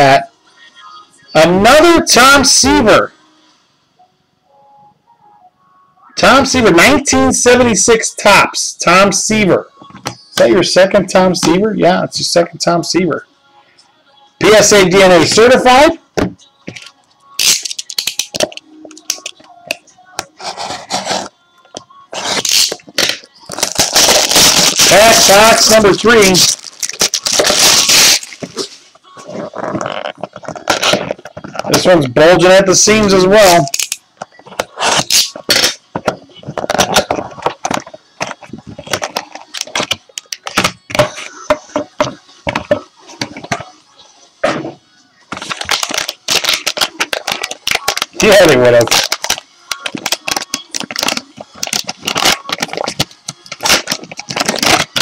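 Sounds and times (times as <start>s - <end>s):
trading cards rustling: 22.1s - 31.9s, 45.3s - 55.0s
crinkly packaging rustle: 22.2s - 31.8s, 45.3s - 55.0s.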